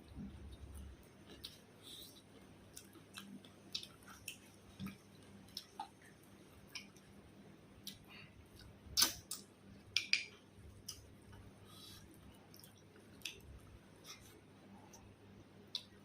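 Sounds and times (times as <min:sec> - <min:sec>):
person chewing food: 0:00.0 - 0:07.2, 0:07.8 - 0:16.0
mouth clicks and smacks: 0:00.1 - 0:07.1, 0:07.8 - 0:11.4.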